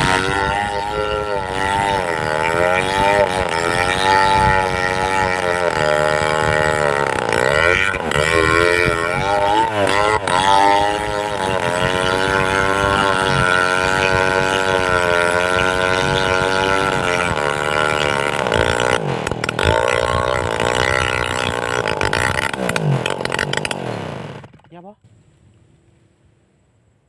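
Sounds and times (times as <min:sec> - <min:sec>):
chainsaw cutting wood: 0:00.0 - 0:24.9
sharp clicks or cracks: 0:18.3 - 0:24.8.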